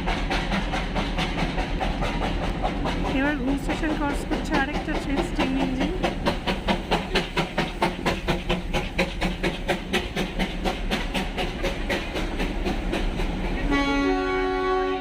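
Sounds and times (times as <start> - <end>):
steam locomotive chuffing: 0.0 - 15.0
steam whistle blowing: 13.7 - 15.0.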